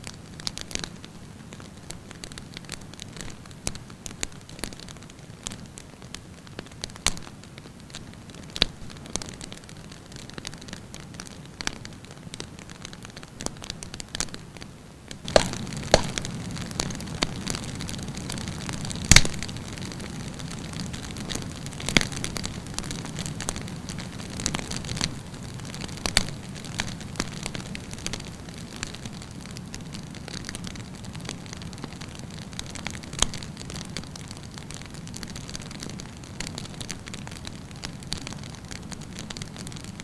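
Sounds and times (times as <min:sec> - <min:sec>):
burning wood crackling and popping: 0:00.0 - 0:40.0
campfire flame rushing: 0:15.2 - 0:23.5.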